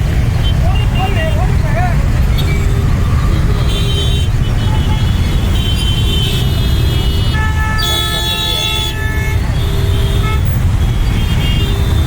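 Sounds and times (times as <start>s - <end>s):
road traffic rumble: 0.0s - 12.0s
vehicle horn: 2.4s - 12.0s.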